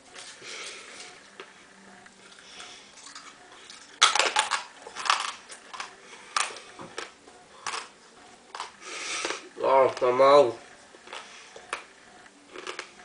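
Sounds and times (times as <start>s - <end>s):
hard mints crunching: 4.0s - 10.2s, 11.0s - 11.9s, 12.5s - 13.0s.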